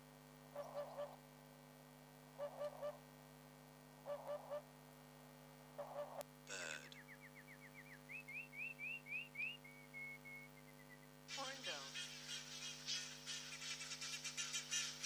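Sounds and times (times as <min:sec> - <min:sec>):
steady hum: 0:00.0 - 0:15.0
low pulsed calls: 0:02.4 - 0:03.0, 0:07.1 - 0:11.1
bird whistling song: 0:07.0 - 0:15.0.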